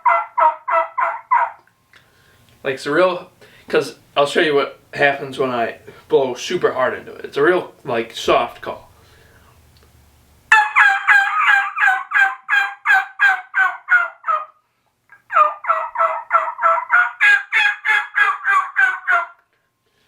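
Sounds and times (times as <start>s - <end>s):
turkey call hen yelps: 0.0s - 1.6s, 10.5s - 19.4s.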